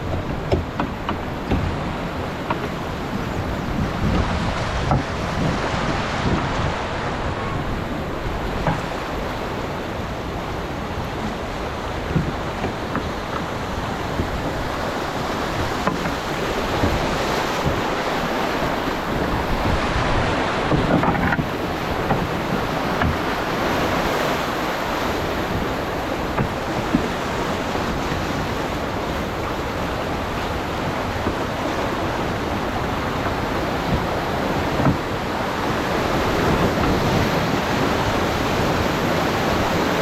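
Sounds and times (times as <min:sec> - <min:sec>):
whitewater rushing: 0:00.0 - 0:40.0
wind buffeting microphone: 0:00.0 - 0:40.0.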